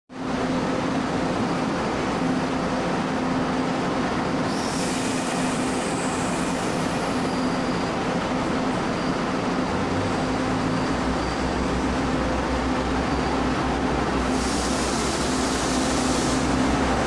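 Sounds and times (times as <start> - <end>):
diesel engines humming: 5.4 - 17.0
high thin whine with hiss: 14.3 - 16.7.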